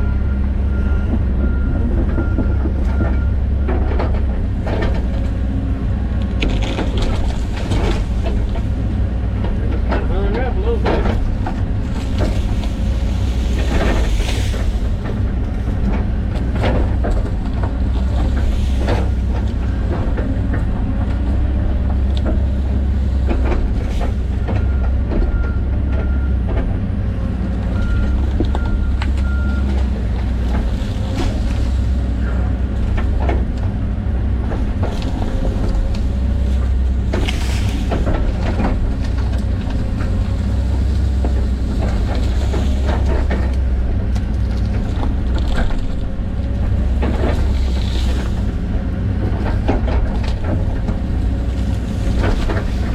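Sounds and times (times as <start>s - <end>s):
excavator diesel engine running: 0.0s - 52.9s
knocks and cracks of brush: 34.4s - 52.9s.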